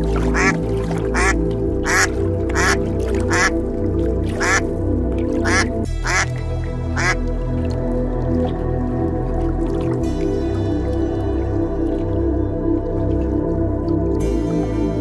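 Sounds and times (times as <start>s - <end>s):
soft background music: 0.0s - 15.0s
bird giving harsh calls: 0.3s - 0.6s, 1.2s - 3.5s, 4.4s - 4.6s, 5.5s - 6.3s, 7.0s - 7.2s.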